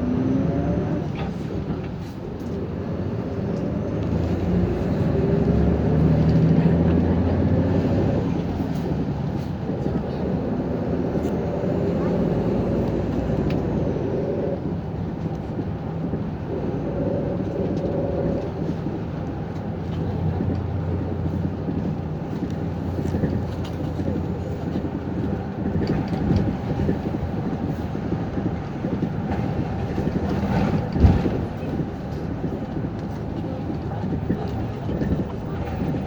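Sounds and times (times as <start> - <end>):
bus engine drone: 0.0 - 36.0
road rumble: 0.0 - 36.0.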